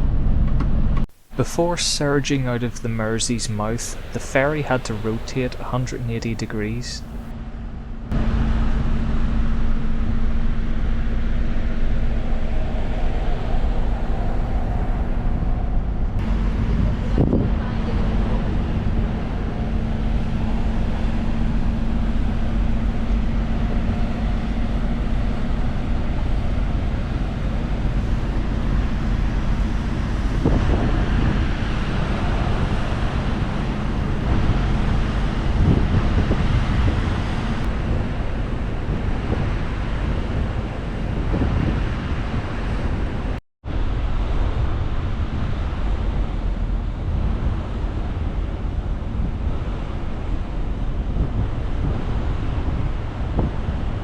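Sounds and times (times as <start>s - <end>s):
low drone of ship: 0.0s - 54.0s
sea wash: 1.1s - 7.3s, 11.0s - 43.4s
wind rushing over microphone: 10.6s - 54.0s.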